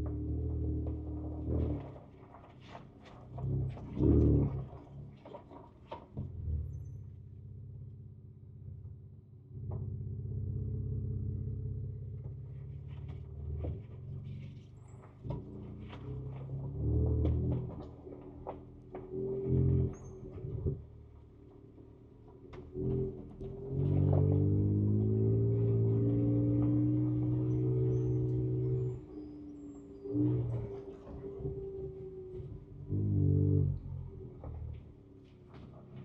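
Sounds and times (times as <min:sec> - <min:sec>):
truck knocks and rattles: 0:12.1 - 0:28.9, 0:30.2 - 0:36.0.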